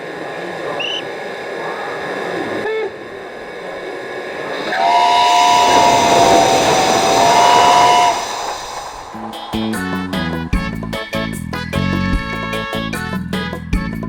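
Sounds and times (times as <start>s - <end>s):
rail noise hiss: 0.0s - 11.9s
train whistle chord: 4.5s - 11.1s, 11.8s - 13.6s.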